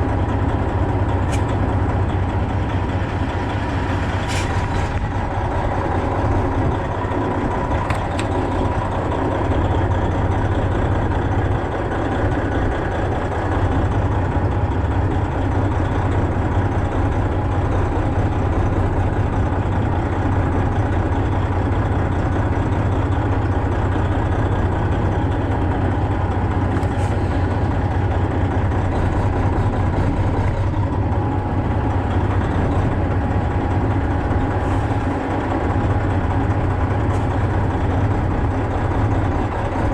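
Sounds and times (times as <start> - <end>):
diesel truck engine droning: 0.0 - 39.9.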